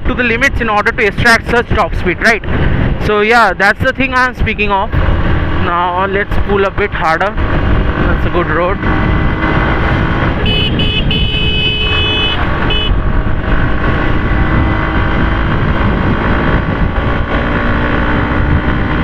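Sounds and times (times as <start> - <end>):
wind noise on microphone: 0.0 - 19.0
motorcycle engine pulling hard: 4.8 - 19.0
vehicle horn blasts: 10.4 - 13.0.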